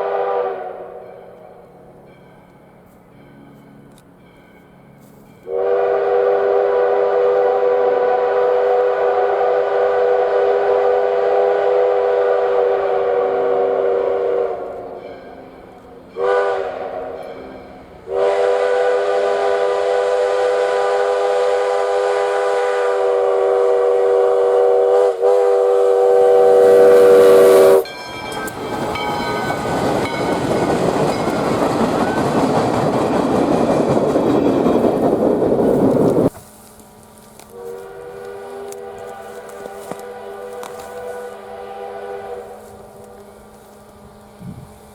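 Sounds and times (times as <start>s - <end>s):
steam whistle blowing: 0.0s - 1.5s, 5.4s - 30.4s, 37.5s - 44.7s
train passing rushing noise: 0.0s - 44.9s.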